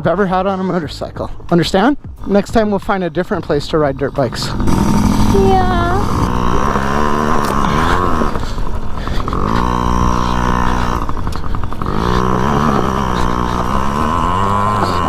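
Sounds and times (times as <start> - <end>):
dirt bike engine revving: 2.0 - 15.0.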